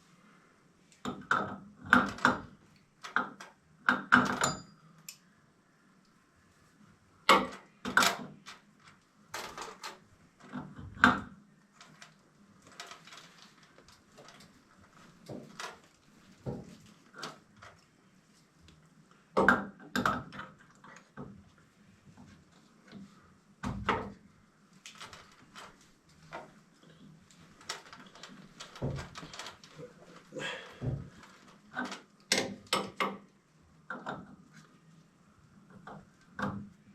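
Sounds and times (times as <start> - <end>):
objects knocking and clunking: 7.3 - 17.8, 19.4 - 21.4, 22.1 - 24.2, 24.9 - 33.3.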